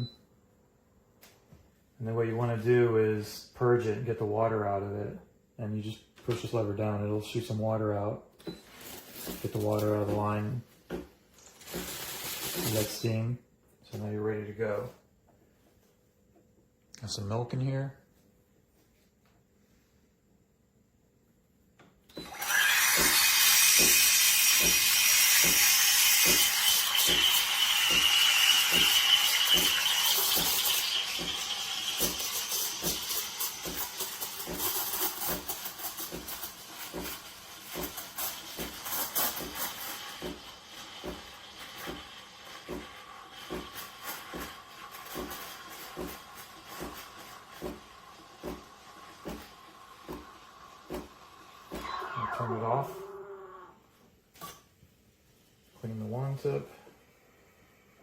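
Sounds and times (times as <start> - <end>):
steam wand hissing: 22.3 - 53.2.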